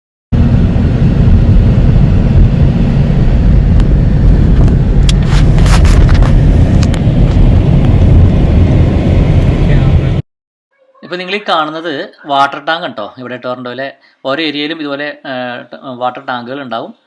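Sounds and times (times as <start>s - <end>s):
car driving on road rumble: 0.4s - 10.2s.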